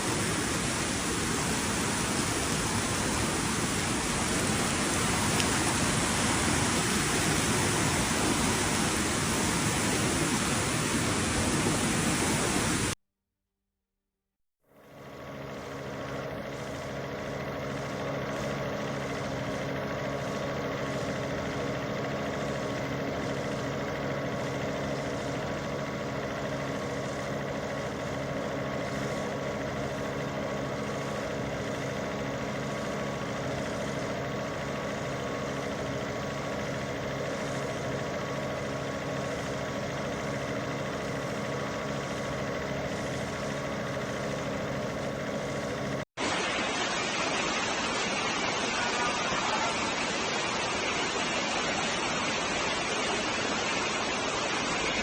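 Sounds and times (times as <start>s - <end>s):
engine idling: 0.0s - 13.0s, 14.8s - 46.1s
constant rushing noise: 15.4s - 55.0s.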